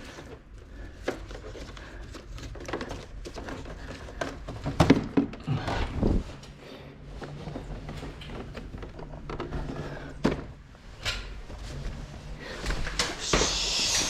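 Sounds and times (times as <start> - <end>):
rustling hiss: 13.1 - 14.0.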